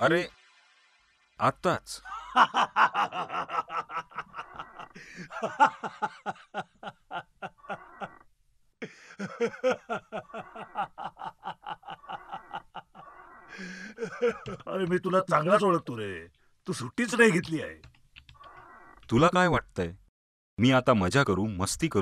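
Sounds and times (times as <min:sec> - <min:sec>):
men laughing hard: 0:02.0 - 0:14.8.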